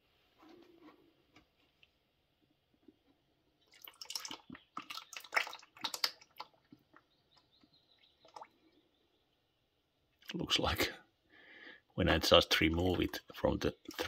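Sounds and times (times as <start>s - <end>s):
oil dripping: 2.7s - 10.4s, 12.5s - 14.0s
oil splashing into a bucket: 3.6s - 8.7s, 12.5s - 14.0s.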